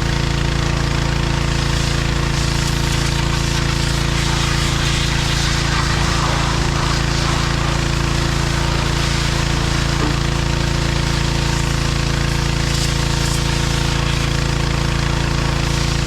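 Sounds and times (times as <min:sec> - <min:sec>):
tractor diesel engine running: 0:06.6 - 0:12.6.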